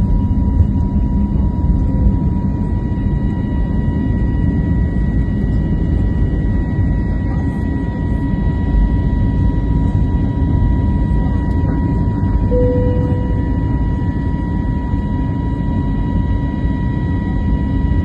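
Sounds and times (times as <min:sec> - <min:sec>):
jet engine rumble: 0:00.0 - 0:18.0
high whine: 0:12.5 - 0:14.4.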